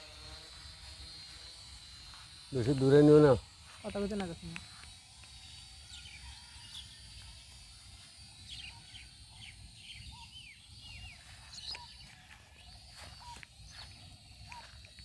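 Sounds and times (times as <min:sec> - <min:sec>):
faint high whine: 0:00.0 - 0:15.0
birds chirping and calling: 0:08.4 - 0:15.0.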